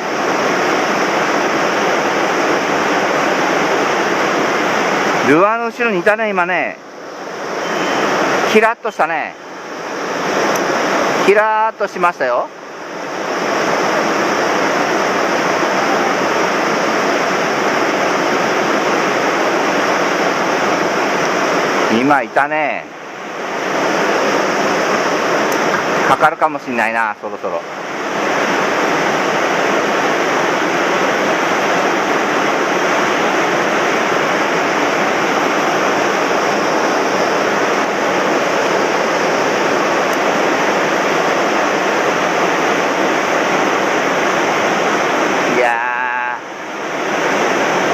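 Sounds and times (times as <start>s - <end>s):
mountain stream rushing: 0.0s - 47.9s.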